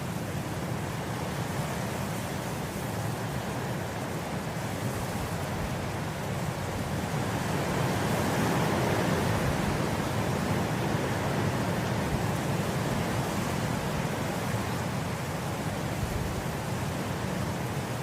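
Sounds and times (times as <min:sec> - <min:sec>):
wind blowing through grass: 0:00.0 - 0:18.0.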